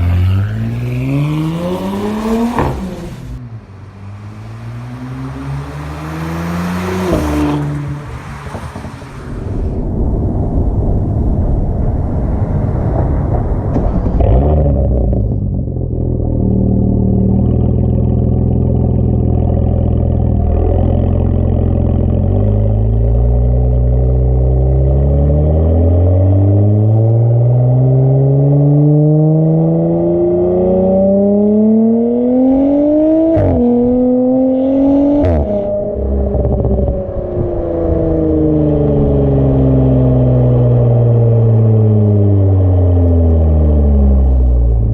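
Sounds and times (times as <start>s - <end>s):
car engine accelerating: 0.0s - 44.9s.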